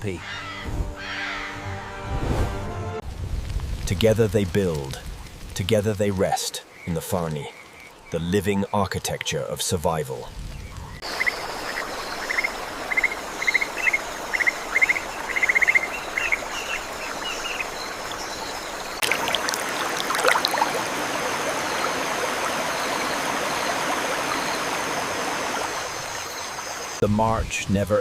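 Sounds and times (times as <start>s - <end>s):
rushing like flowing water: 10.9s - 27.1s.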